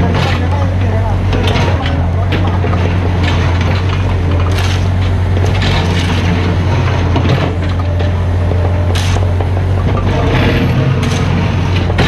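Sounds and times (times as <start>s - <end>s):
diesel engine running: 0.0s - 12.0s
excavator crunching ground: 0.0s - 12.0s.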